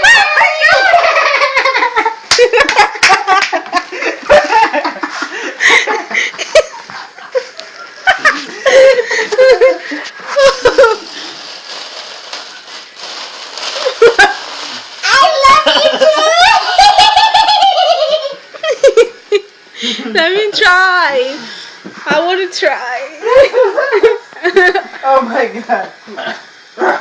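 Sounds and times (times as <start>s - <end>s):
people laughing and giggling: 0.7s - 11.2s, 23.2s - 25.0s.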